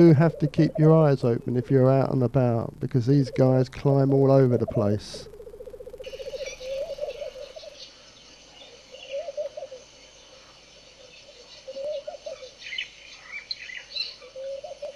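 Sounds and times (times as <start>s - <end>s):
bird low warbling call: 0.0s - 2.5s, 3.1s - 14.9s
high bird chirps: 6.0s - 9.8s.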